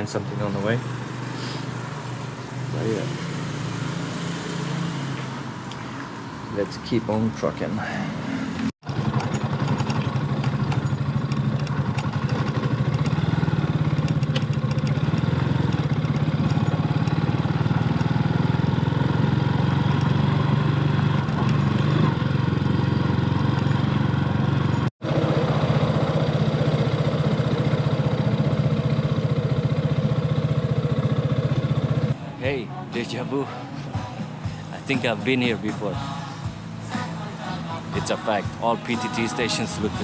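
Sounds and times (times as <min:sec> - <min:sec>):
motorcycle engine running: 0:08.5 - 0:40.0.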